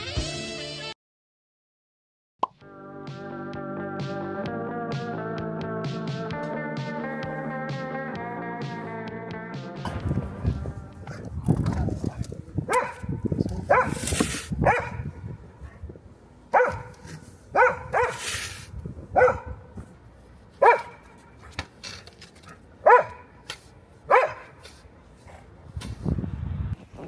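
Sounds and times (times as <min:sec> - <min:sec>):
dog barking: 0:12.7 - 0:15.8, 0:16.5 - 0:18.3, 0:19.1 - 0:19.7, 0:20.6 - 0:21.5, 0:22.8 - 0:23.4, 0:24.1 - 0:24.7
brief hissing noises: 0:18.1 - 0:18.8.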